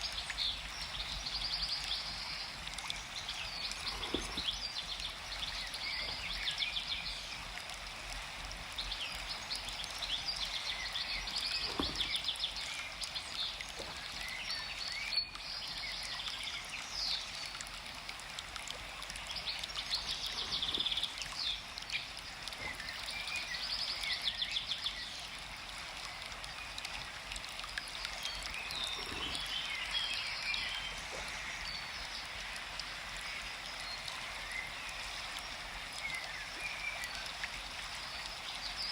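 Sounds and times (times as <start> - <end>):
flowing water rushing: 0.0 - 38.9
birds chirping and trilling: 1.9 - 7.3, 19.3 - 25.2, 28.0 - 32.5.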